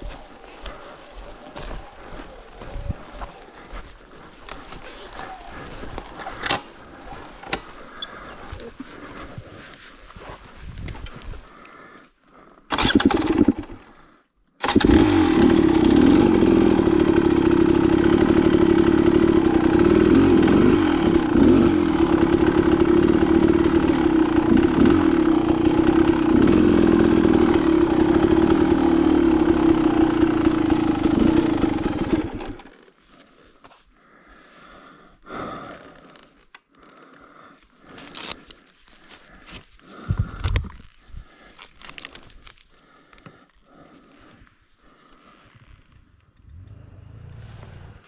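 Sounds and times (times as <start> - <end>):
dirt bike engine running: 0.0 - 9.0, 12.7 - 13.9, 14.6 - 32.8.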